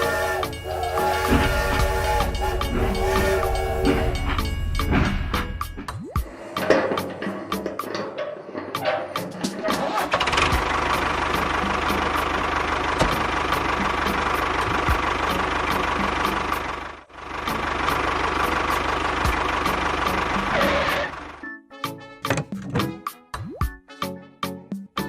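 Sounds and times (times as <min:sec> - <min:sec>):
small engine chugging: 0:00.0 - 0:05.8, 0:08.7 - 0:21.4.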